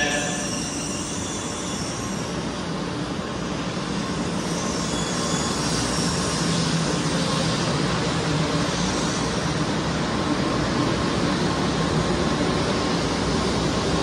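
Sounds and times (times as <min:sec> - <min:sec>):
train pulling out: 0:00.0 - 0:14.0.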